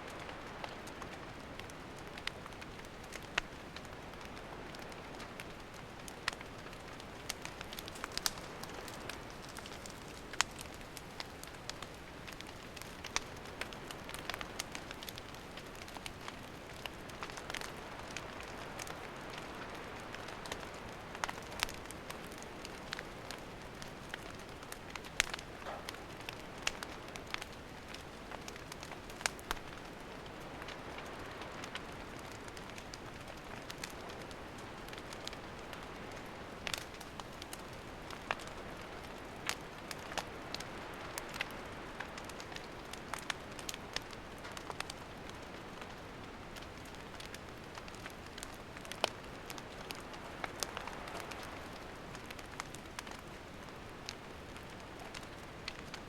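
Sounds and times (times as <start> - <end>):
firewood crackling and popping: 0.0 - 56.0
hiss of campfire flames: 0.1 - 56.0.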